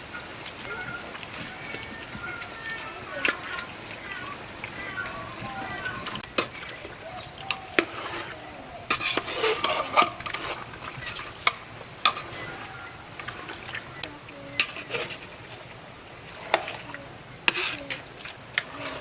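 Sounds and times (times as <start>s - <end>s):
curry sizzling in a pot: 0.0s - 19.0s.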